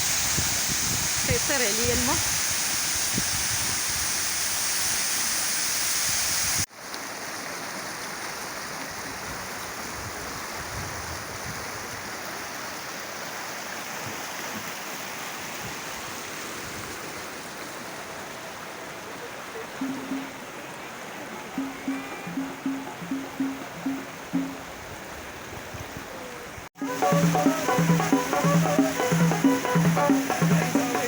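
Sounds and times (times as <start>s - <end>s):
waterfall rushing and splashing: 0.0s - 25.7s, 26.4s - 31.0s.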